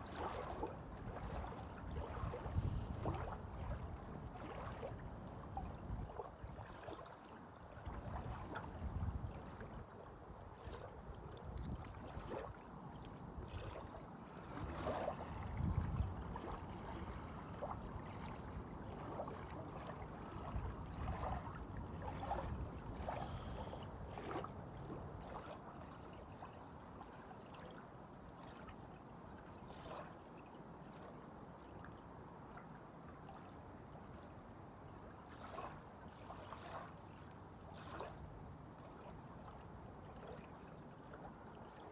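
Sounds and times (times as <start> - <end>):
small waves lapping: 0.0 - 31.8, 35.1 - 41.9
wind buffeting microphone: 15.2 - 17.4.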